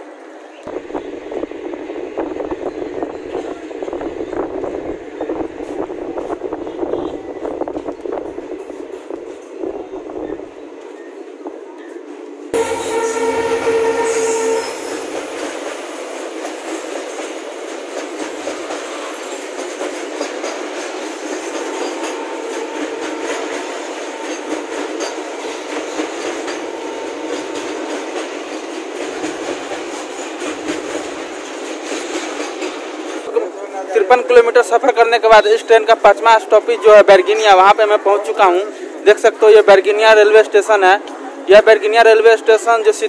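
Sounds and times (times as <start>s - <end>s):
train wagons rumbling and clattering: 0.0s - 43.0s
train horn blast: 12.6s - 15.6s, 21.6s - 27.7s.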